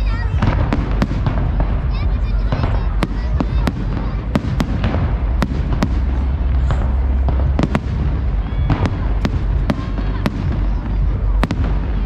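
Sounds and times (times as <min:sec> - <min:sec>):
deep rumble: 0:00.0 - 0:12.0
fireworks bangs: 0:00.0 - 0:12.0.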